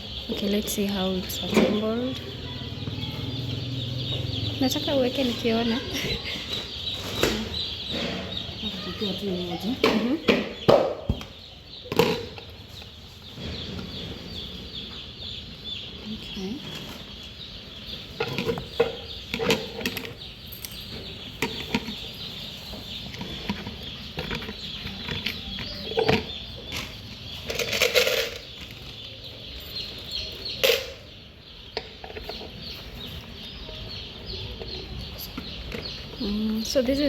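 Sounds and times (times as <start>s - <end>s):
chicks cheeping: 0.0s - 37.0s
plastic parts clacking: 23.2s - 28.8s.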